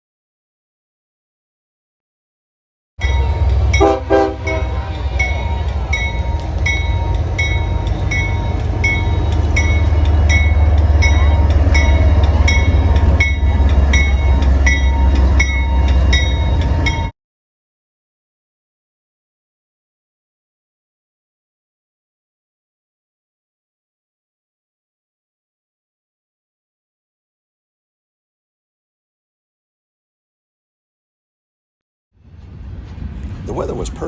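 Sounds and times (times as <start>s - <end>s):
train horn blast: 3.0s - 7.2s
level-crossing bell dinging: 3.0s - 17.1s
train passing: 3.0s - 17.1s, 32.2s - 34.0s.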